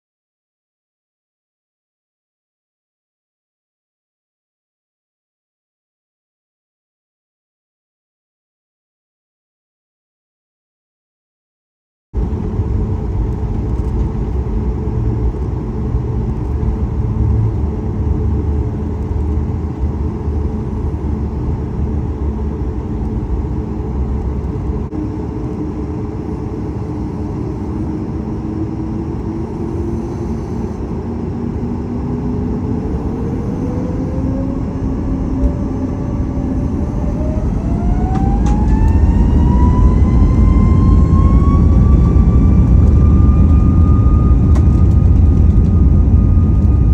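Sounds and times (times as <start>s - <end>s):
jet engine whine rising in pitch: 12.2s - 46.9s
jet engines rumbling in cabin: 12.2s - 46.9s.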